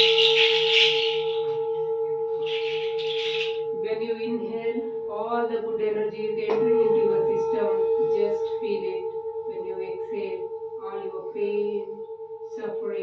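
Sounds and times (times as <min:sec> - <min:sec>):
person chanting: 0:00.0 - 0:01.5, 0:02.4 - 0:12.0
shaker rattling: 0:00.0 - 0:01.6, 0:02.4 - 0:03.6
singing bowl ringing: 0:00.0 - 0:13.0.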